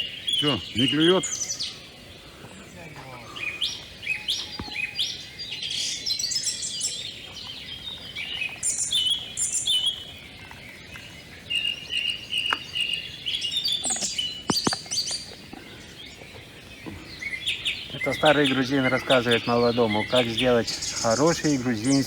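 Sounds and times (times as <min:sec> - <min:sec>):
small songbirds chirping: 0:00.0 - 0:22.0
sharp clicks: 0:13.8 - 0:15.6.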